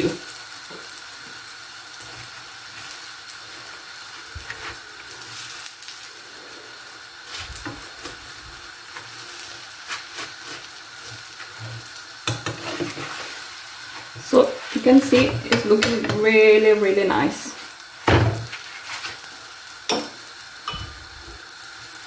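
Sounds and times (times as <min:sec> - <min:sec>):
flatbread sizzling in a pan: 0:00.0 - 0:22.0
metal spoon scraping and tapping: 0:12.3 - 0:13.0, 0:19.9 - 0:21.0.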